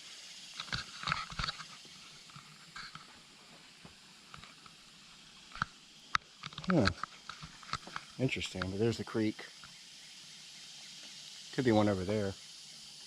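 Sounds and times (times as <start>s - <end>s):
faint outdoor background: 0.0s - 13.0s
small ticks: 0.2s - 13.0s.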